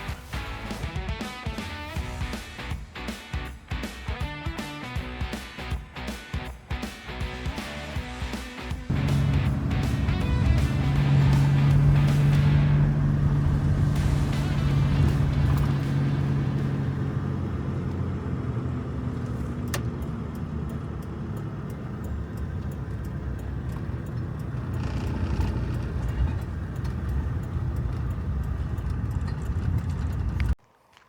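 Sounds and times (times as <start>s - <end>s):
vehicle engine and road rumble: 6.6s - 31.0s
light ticking: 8.9s - 31.0s.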